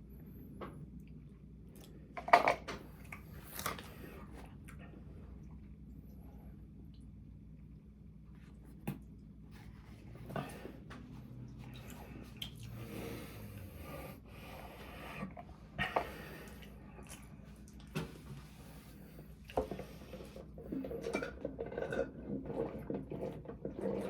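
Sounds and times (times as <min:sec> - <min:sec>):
chewing: 0:16.5 - 0:17.9.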